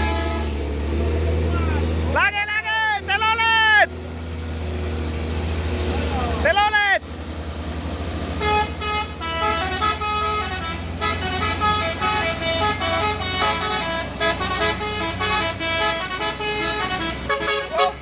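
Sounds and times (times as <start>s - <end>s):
musical air horn tune: 0.0s - 0.6s, 8.4s - 18.0s
truck engine running: 0.0s - 18.0s.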